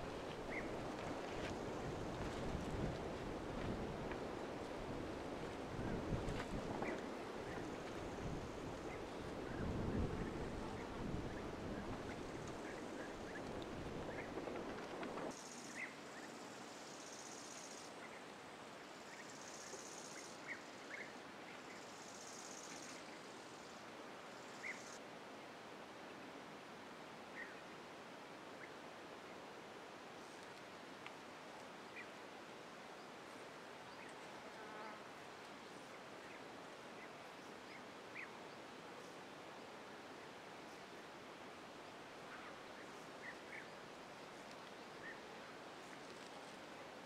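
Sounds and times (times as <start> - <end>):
faint hiss: 0.0 - 47.0
insect buzz: 15.4 - 17.9, 18.8 - 20.8, 21.7 - 23.8.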